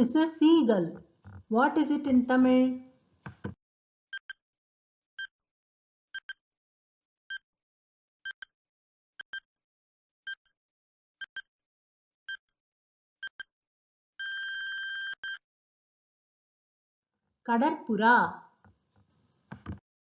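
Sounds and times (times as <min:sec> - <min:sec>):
long steady beep: 0:14.2 - 0:15.4
short electronic beeps: 0:14.2 - 0:15.4.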